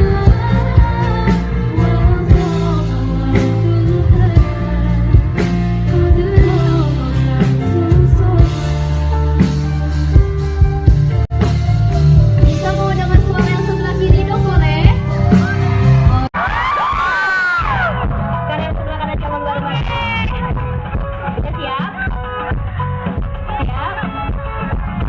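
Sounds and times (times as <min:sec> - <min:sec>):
person singing: 0:00.0 - 0:10.1
live band playing: 0:00.0 - 0:25.0.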